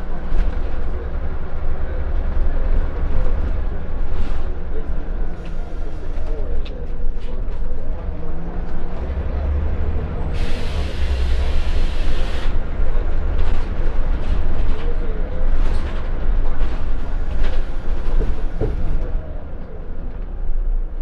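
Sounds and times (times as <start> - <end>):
bus diesel engine rumbling: 0.0 - 21.0
light rattles and knocks: 13.4 - 19.2.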